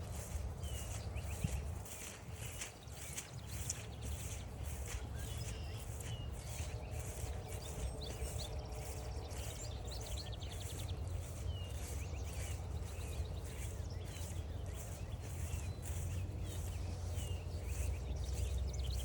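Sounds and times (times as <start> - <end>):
birds chirping and singing: 0.0 - 19.0
footsteps on a trail: 0.0 - 19.0.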